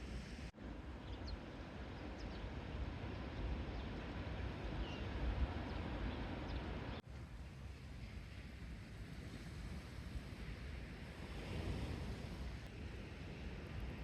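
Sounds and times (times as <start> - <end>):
wind on microphone: 8.1 - 14.0.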